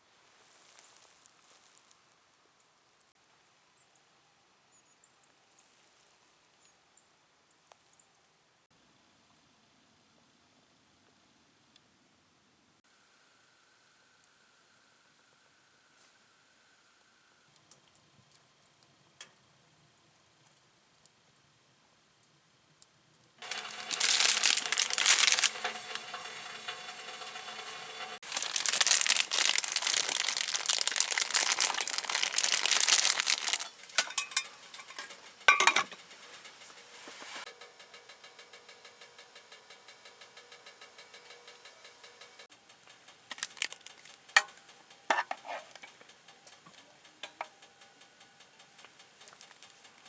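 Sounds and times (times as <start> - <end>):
utensils clinking on a pan: 23.4 - 37.4, 43.6 - 46.0
sizzling in a hot pan: 23.4 - 37.9.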